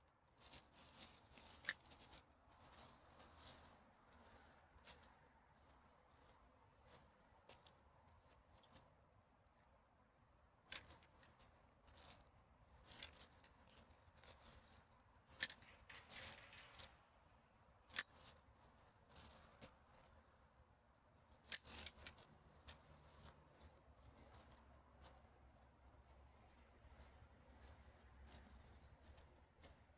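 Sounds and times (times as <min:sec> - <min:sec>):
rustling and crackling of litter: 0:00.3 - 0:08.9, 0:10.7 - 0:17.2, 0:17.8 - 0:20.4, 0:21.3 - 0:25.4.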